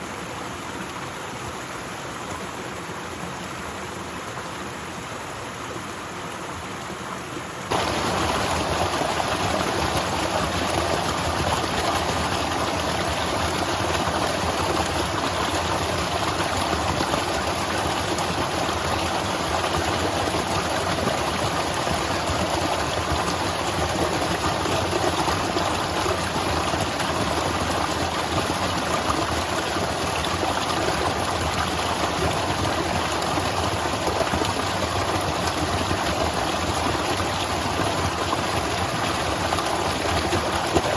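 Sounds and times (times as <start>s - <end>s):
waterfall rushing water: 0.1s - 40.9s.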